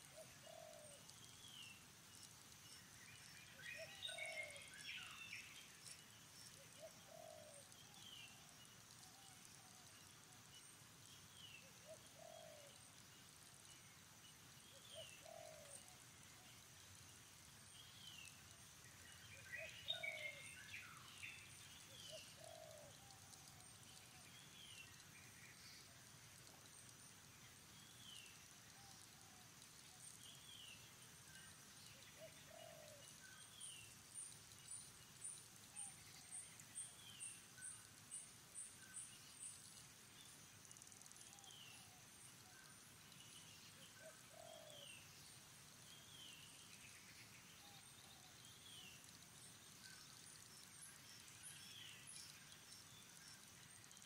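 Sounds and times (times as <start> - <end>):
bird chirps: 2.6 - 8.4.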